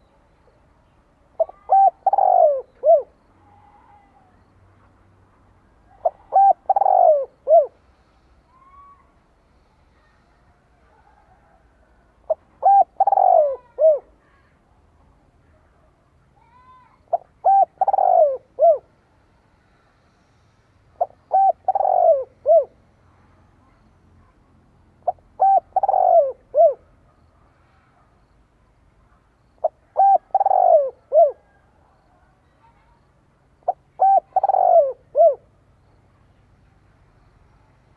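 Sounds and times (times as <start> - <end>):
dove cooing: 1.4 - 3.8, 5.9 - 7.8, 12.3 - 14.1, 17.1 - 18.9, 21.0 - 22.8, 25.0 - 26.9, 29.6 - 31.7, 33.6 - 35.5.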